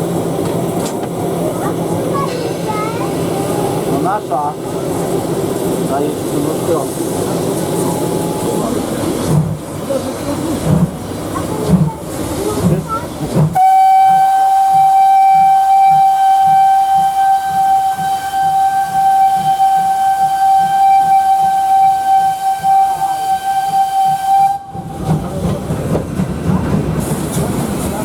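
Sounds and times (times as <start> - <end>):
train running: 0.0 - 28.0
steam locomotive whistle blast: 13.6 - 24.9.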